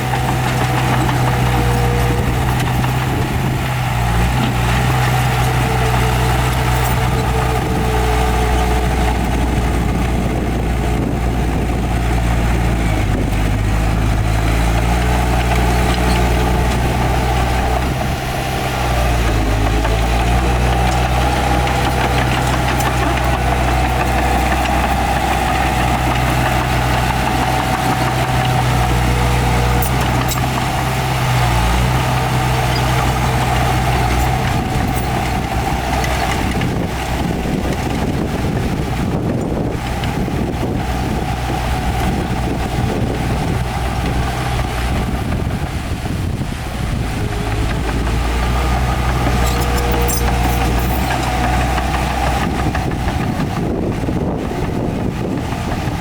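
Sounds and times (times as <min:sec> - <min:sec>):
heavy diesel machinery engine drone: 0:00.0 - 0:56.0.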